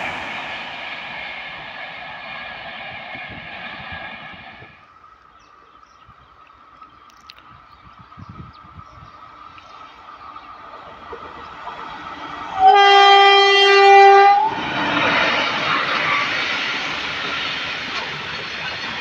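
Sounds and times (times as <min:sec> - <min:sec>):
freight train running on rails: 0:00.0 - 0:19.0
locomotive horn blast: 0:12.6 - 0:14.5.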